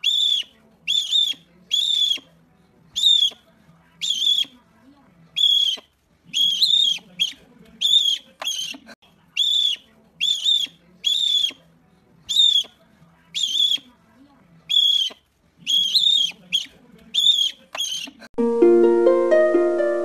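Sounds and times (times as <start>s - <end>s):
owl screechy calls: 5.4s - 8.8s, 9.4s - 11.6s, 12.3s - 12.6s, 13.4s - 13.8s, 14.7s - 18.2s
plucked harp music: 18.4s - 20.0s.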